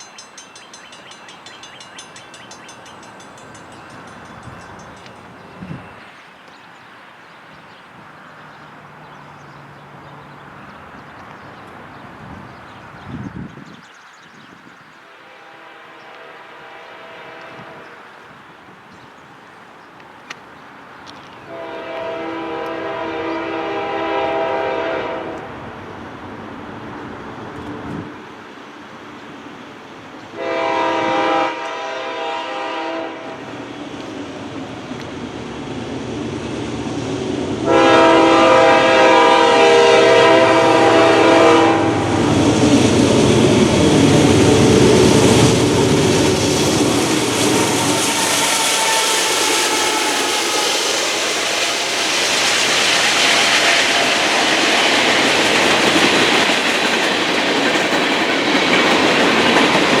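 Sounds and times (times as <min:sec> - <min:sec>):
train wheels rumbling on rail: 0:00.0 - 0:07.0, 0:07.7 - 1:00.0
train horn blast: 0:15.0 - 0:18.0, 0:21.5 - 0:25.6, 0:30.3 - 0:33.5, 0:37.5 - 0:42.3, 0:44.2 - 0:52.4.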